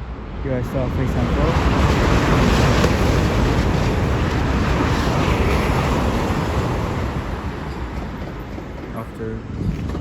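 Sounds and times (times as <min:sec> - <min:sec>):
high-speed train passing: 0:00.0 - 0:10.0.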